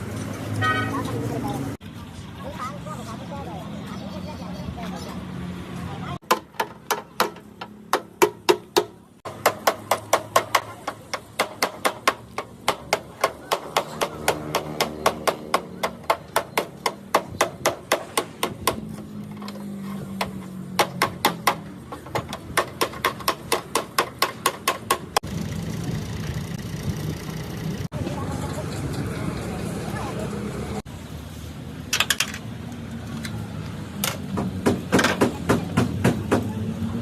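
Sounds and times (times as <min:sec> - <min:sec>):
hammer striking: 0:06.2 - 0:19.0.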